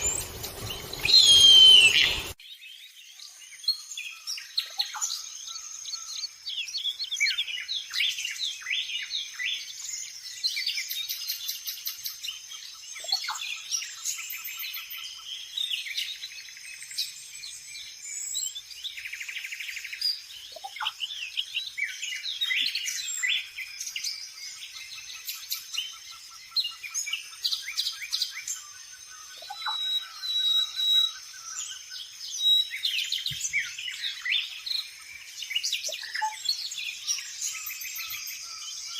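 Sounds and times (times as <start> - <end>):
rapid buzzing bird trill: 0.0 - 2.4
small birds chirping: 0.0 - 38.9.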